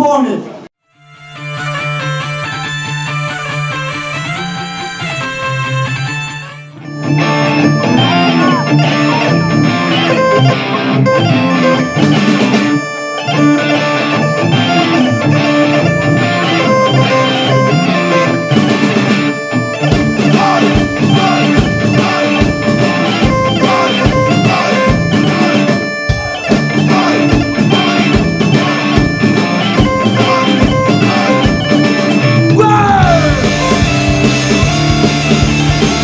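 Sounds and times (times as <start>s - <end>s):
bagpipes playing: 0.9s - 36.0s
electric guitar: 0.9s - 36.0s
bass guitar: 1.0s - 36.0s
steady drum beat: 8.3s - 15.2s, 15.8s - 36.0s.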